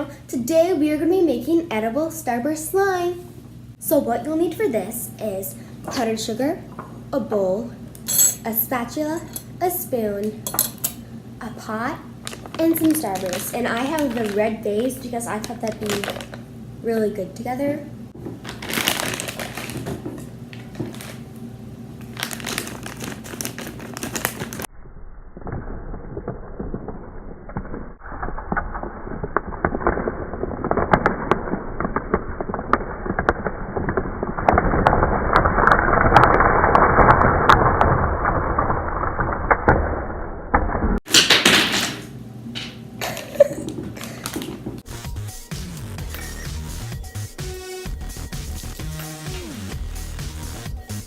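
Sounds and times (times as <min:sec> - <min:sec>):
candy wrappers crinkling: 0:12.2 - 0:16.4, 0:18.4 - 0:21.2, 0:22.0 - 0:24.7.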